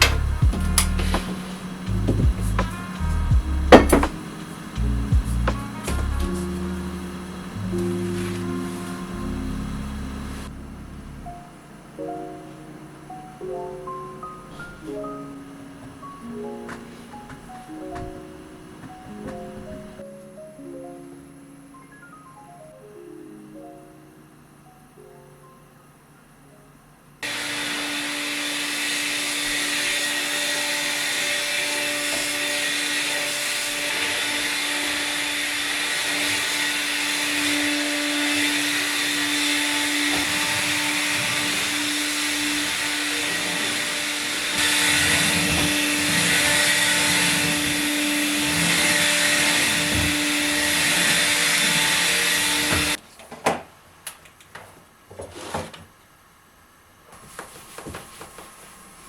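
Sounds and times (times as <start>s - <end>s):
vacuum cleaner running: 0.0s - 10.6s, 27.2s - 53.0s.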